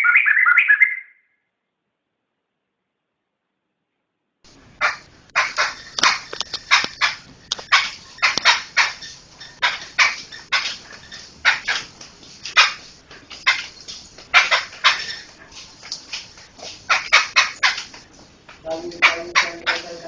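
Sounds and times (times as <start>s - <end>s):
bird rasping chattering calls: 4.6s - 18.1s, 18.8s - 20.0s.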